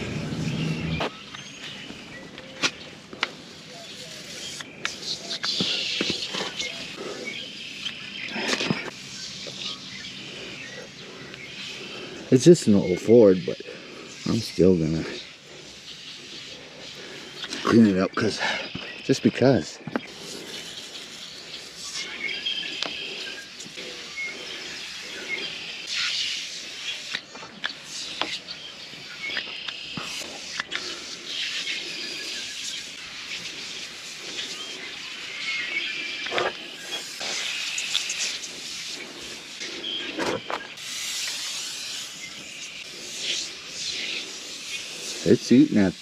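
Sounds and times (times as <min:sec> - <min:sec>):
spray can hissing bursts: 0:03.3 - 0:07.0, 0:20.1 - 0:46.0.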